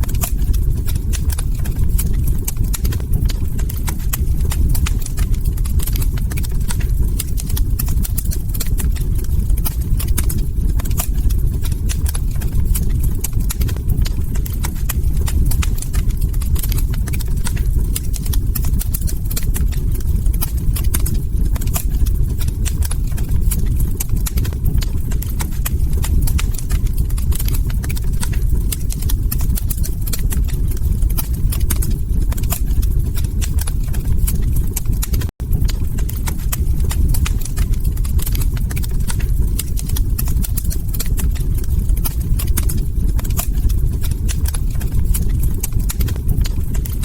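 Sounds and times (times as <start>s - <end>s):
log fire crackling: 0.0s - 47.0s
steady low rumble: 0.0s - 47.0s.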